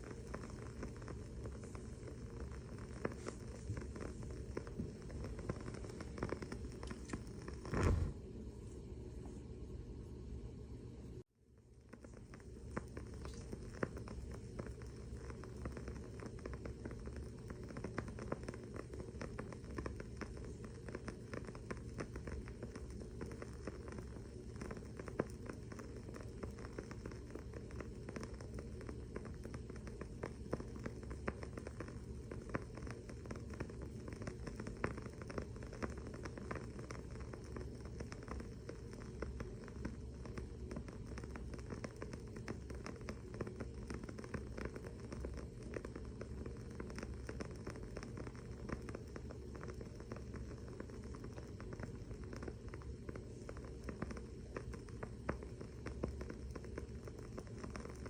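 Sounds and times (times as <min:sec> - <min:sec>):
candle wick crackling: 0:00.0 - 0:09.4, 0:11.6 - 0:58.0
low steady hum: 0:00.0 - 0:58.0.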